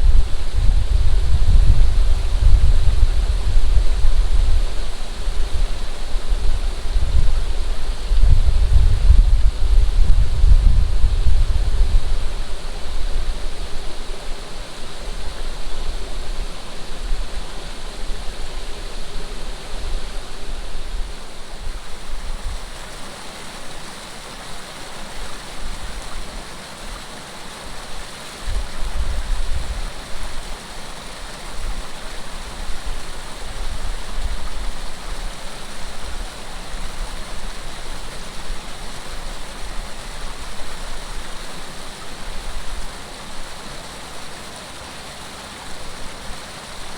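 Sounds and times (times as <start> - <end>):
wind buffeting microphone: 0.0 - 22.8, 28.4 - 30.6
running water flowing: 0.0 - 46.9.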